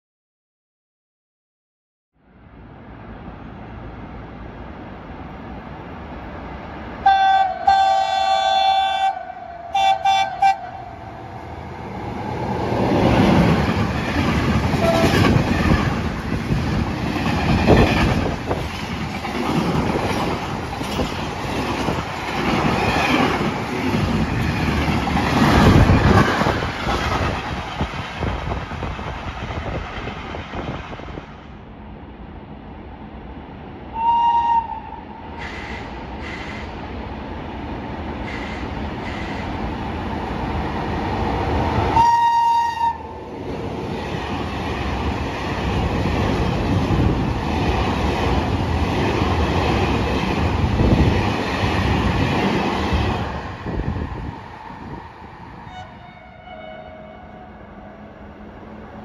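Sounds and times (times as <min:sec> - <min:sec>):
train two-tone horn: 0:07.0 - 0:11.3, 0:14.8 - 0:15.4, 0:33.9 - 0:36.7, 0:41.9 - 0:43.2, 0:55.6 - 0:58.0.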